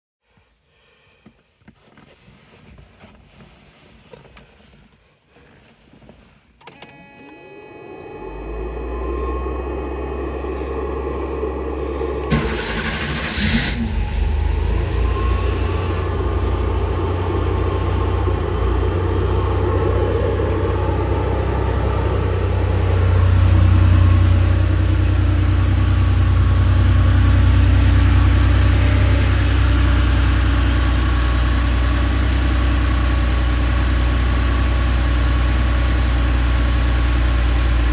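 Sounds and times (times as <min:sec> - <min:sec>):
car engine starting and idling: 0:06.6 - 0:37.9.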